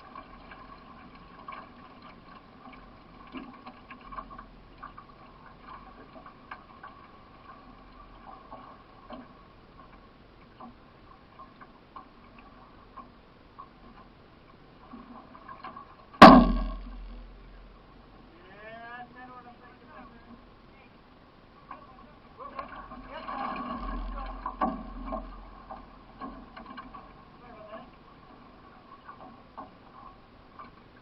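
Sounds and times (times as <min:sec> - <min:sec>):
canoe paddle strokes in water: 0:00.0 - 0:18.3, 0:21.4 - 0:31.0
loud ringing knock: 0:16.2 - 0:17.4.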